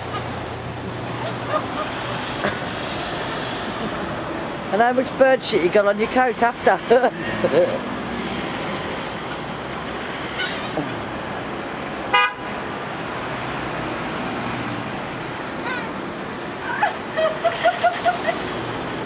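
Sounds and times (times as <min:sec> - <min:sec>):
traffic: 0:00.0 - 0:19.0
wind: 0:00.0 - 0:19.0
gulls calling: 0:01.1 - 0:02.7.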